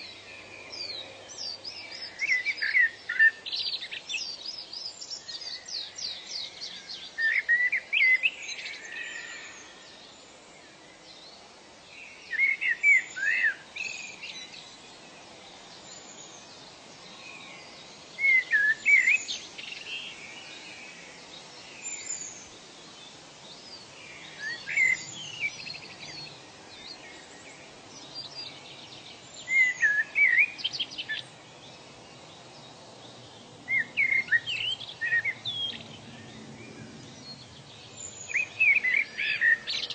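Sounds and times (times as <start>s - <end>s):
faint background hiss: 0.0s - 39.9s.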